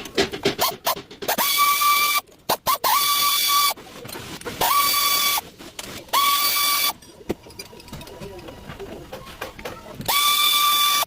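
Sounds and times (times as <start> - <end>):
water pump squealing: 4.6 - 5.4, 6.1 - 7.0, 10.1 - 11.0.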